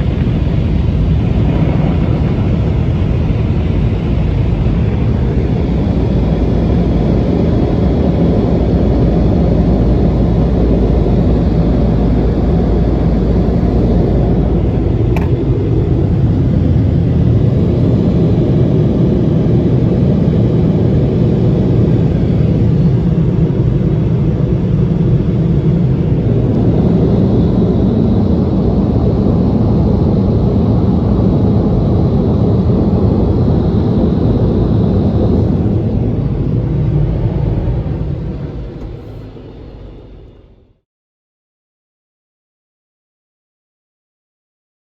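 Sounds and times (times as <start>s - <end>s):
car wash air dryer blowers: 4.5s - 19.0s.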